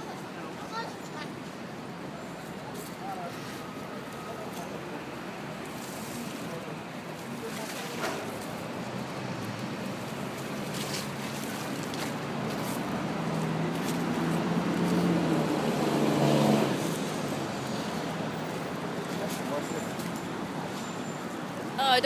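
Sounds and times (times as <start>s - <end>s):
street traffic: 0.0s - 22.0s
vehicle engine hum: 8.2s - 22.0s.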